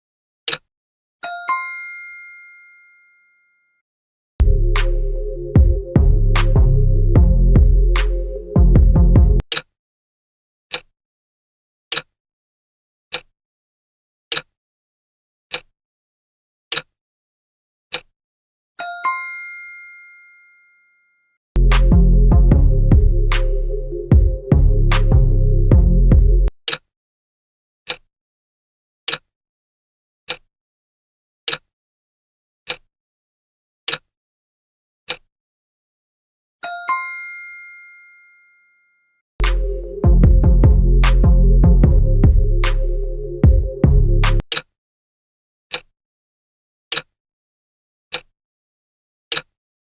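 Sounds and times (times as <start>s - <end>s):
countdown timer ticks: 4.4s - 9.4s, 21.6s - 26.5s, 39.4s - 44.4s
electronic music: 4.4s - 9.4s, 21.6s - 26.5s, 39.4s - 44.4s.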